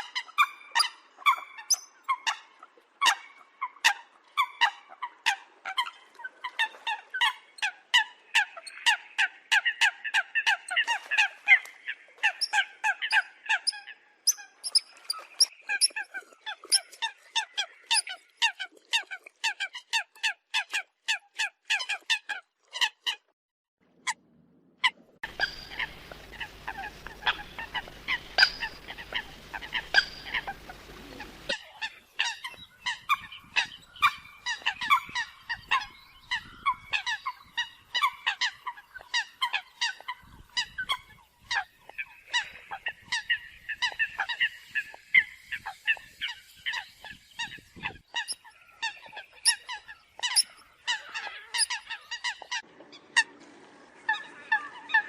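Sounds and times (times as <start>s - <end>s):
coots calling: 24.8s - 52.6s
low hum and hiss: 25.2s - 31.5s.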